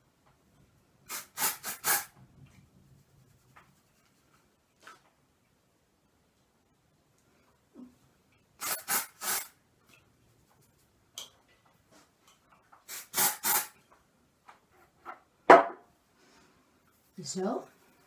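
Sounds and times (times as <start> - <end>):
aerosol spray hissing bursts: 1.1 - 2.1, 8.6 - 9.5, 12.9 - 13.7.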